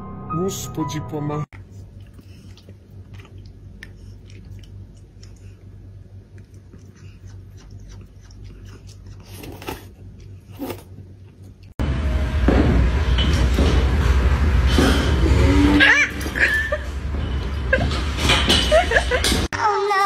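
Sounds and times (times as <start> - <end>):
low steady hum: 0.0 - 19.5
chewing and crunching: 1.6 - 11.8.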